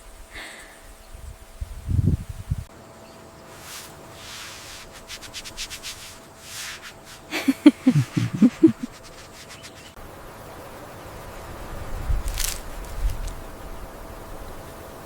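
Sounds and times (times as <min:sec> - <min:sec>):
short scraping strokes: 0:03.5 - 0:10.0.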